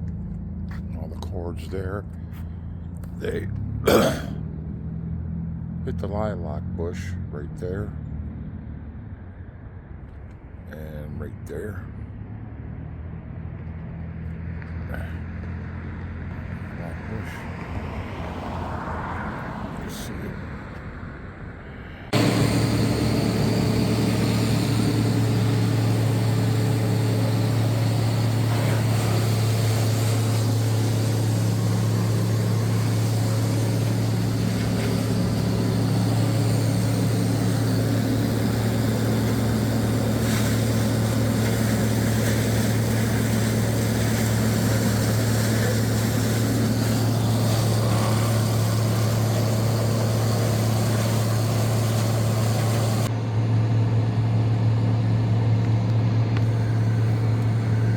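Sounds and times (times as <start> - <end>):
tree chipper engine humming: 0.0 - 7.5, 22.0 - 57.9.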